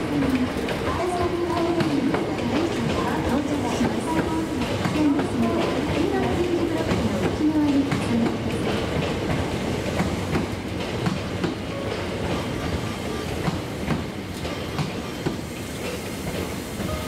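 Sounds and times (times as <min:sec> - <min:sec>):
electric train rumble: 0:00.0 - 0:17.0.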